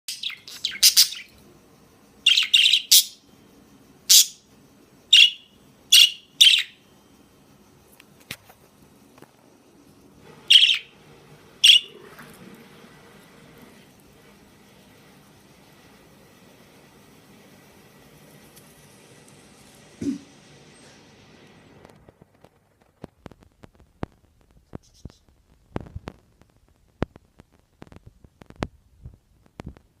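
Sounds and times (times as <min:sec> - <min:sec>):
budgerigar chirping: 0:00.1 - 0:01.3, 0:02.2 - 0:03.2, 0:04.1 - 0:04.4, 0:05.2 - 0:06.8, 0:10.5 - 0:10.9, 0:11.6 - 0:11.9.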